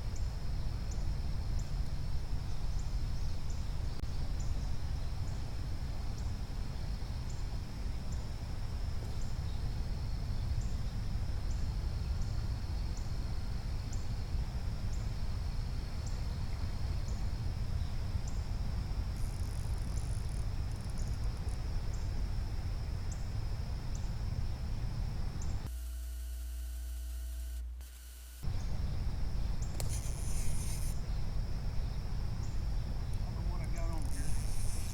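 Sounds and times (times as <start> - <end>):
insects trilling: 0.0 - 25.7, 28.4 - 34.9
low rumble: 28.5 - 34.5
faint regular tick: 29.6 - 30.9.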